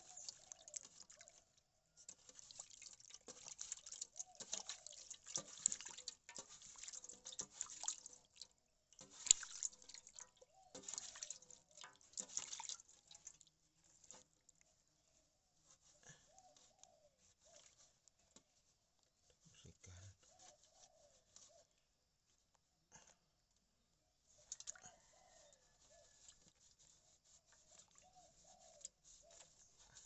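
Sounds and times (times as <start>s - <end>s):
water splashing and dripping: 0.0s - 14.7s, 24.4s - 24.8s, 27.7s - 28.0s.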